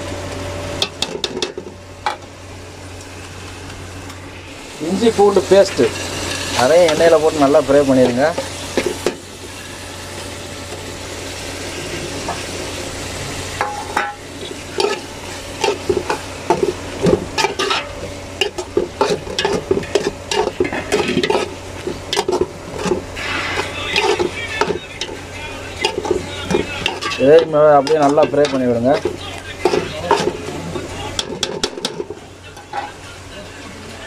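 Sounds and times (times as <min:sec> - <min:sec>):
food sizzling in hot oil: 0:00.0 - 0:34.0
metal ladle scraping a pot: 0:13.9 - 0:33.0.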